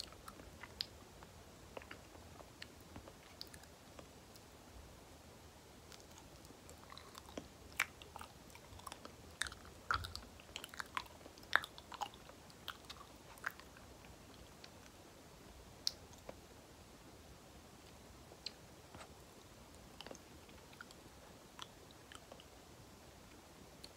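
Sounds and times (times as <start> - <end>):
chewing with wet mouth clicks: 0.0 - 4.5, 5.9 - 15.0, 20.0 - 21.0.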